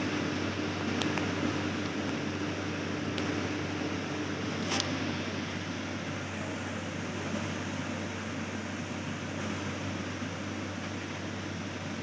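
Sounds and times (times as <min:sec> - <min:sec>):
constant low hum: 0:00.0 - 0:12.0
machine whirring hiss: 0:03.2 - 0:12.0.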